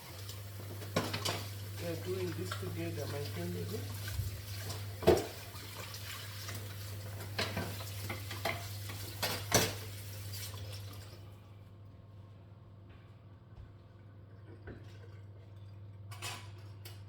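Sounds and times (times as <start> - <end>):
water running from a tap: 0.0 - 11.2.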